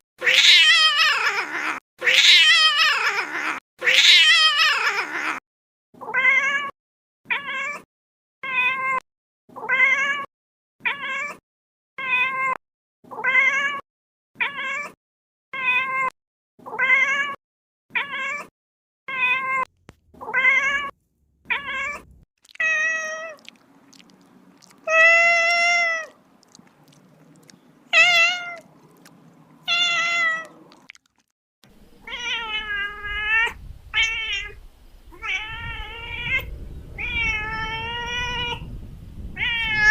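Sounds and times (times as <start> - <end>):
kitten meowing: 0.2 - 3.0, 3.8 - 4.8, 19.1 - 20.9, 21.5 - 28.7, 32.0 - 38.7, 39.4 - 39.9.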